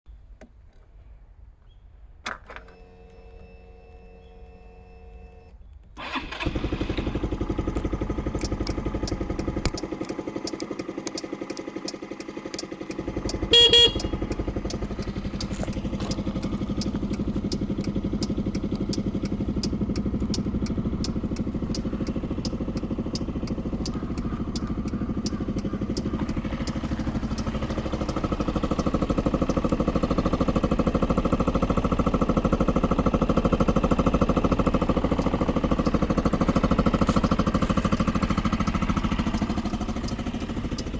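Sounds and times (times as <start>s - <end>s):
scooter horn beep: 2.7s - 7.0s, 12.7s - 29.4s
scooter engine idling: 6.0s - 40.9s.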